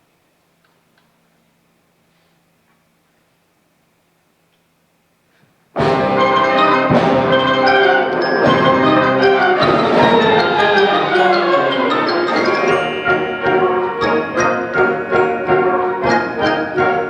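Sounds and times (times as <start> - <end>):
symphonic band playing: 5.8 - 17.0.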